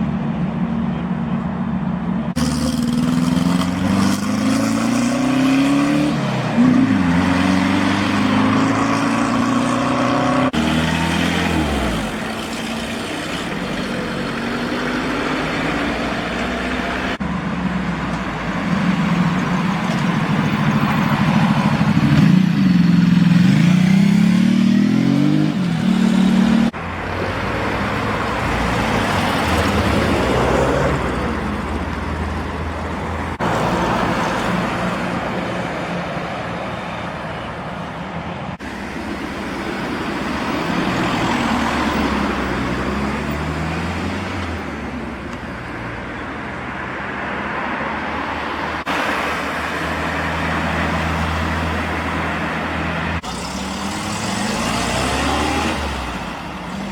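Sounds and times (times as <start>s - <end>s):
cars driving past: 0.0s - 56.9s
car engine revving: 2.3s - 17.3s.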